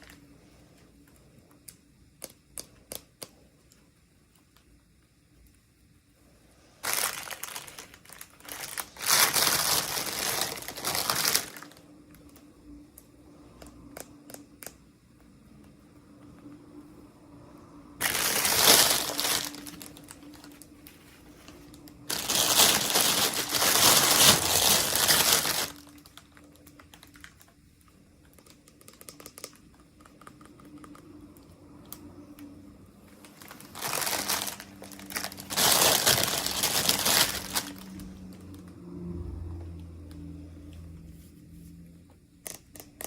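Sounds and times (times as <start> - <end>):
packaging crinkling: 6.8 - 12.4, 18.0 - 31.2, 33.1 - 38.6.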